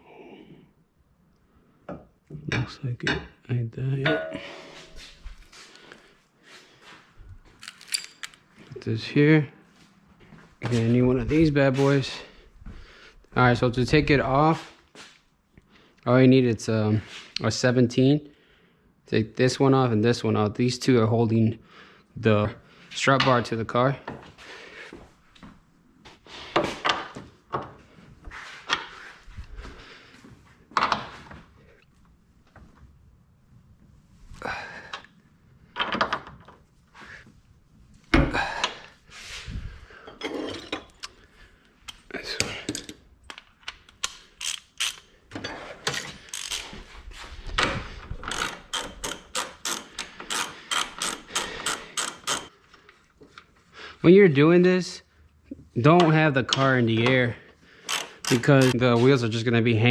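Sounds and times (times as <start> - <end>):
wrench clicking and clunking: 41.9 - 46.8, 47.6 - 52.6, 57.8 - 58.8.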